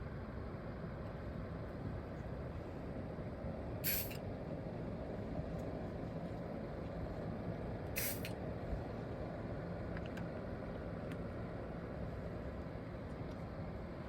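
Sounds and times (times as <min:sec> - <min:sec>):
short sharp hiss: 0:03.8 - 0:04.2, 0:08.0 - 0:08.3.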